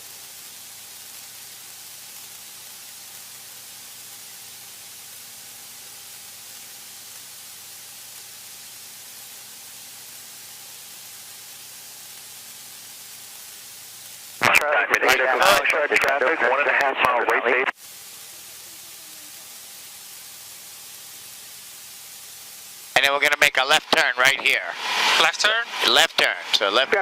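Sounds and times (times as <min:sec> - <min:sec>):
intercom static hiss: 0:14.1 - 0:21.9, 0:22.8 - 0:27.0.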